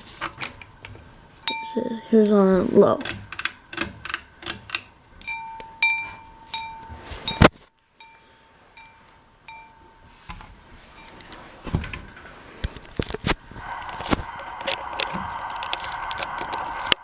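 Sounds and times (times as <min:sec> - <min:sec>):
ceiling fan running: 0:00.0 - 0:17.0
light metallic clinks: 0:00.4 - 0:02.3, 0:03.0 - 0:10.1.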